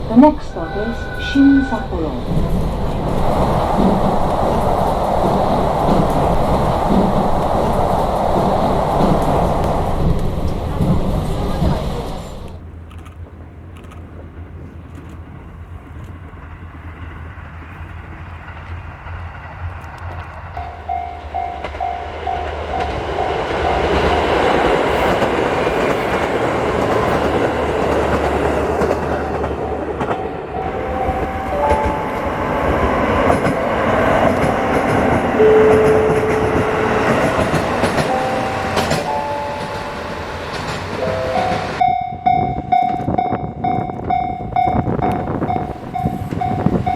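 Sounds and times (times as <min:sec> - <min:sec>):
steady pulsing tone: 0:00.0 - 0:11.8
train running: 0:00.0 - 0:46.9.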